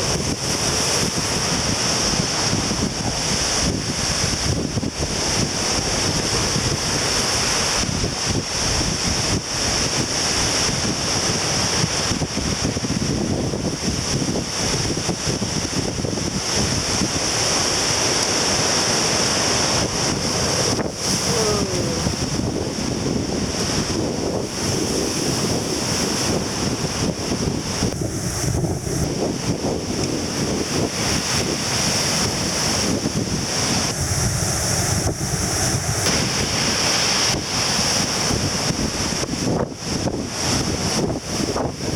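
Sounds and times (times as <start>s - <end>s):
surf breaking on shore: 0.0s - 41.9s
wind buffeting microphone: 0.0s - 41.9s.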